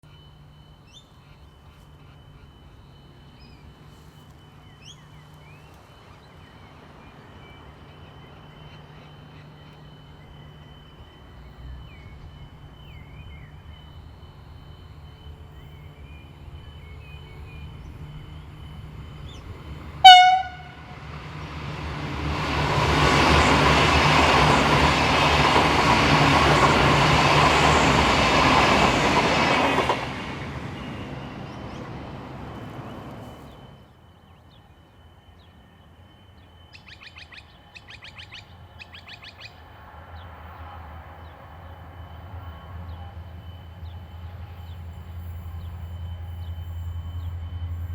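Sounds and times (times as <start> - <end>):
train engine hum: 0.0 - 47.9
wheel and rail noise: 0.1 - 47.9
train horn blast: 20.0 - 21.1.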